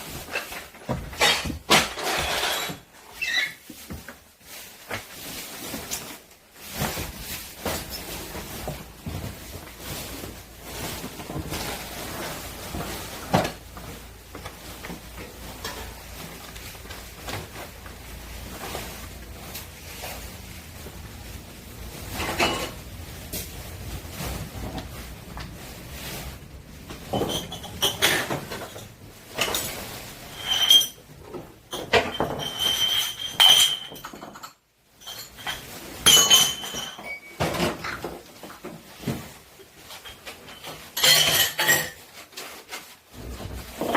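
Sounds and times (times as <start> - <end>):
dishes and glass clattering: 0.2 - 3.5, 22.1 - 22.9, 26.9 - 39.2, 39.9 - 42.2.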